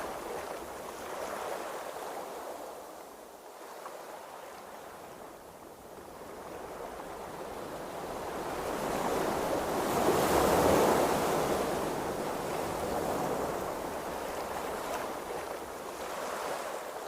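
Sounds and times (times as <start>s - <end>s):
ocean waves washing: 0.0s - 17.0s.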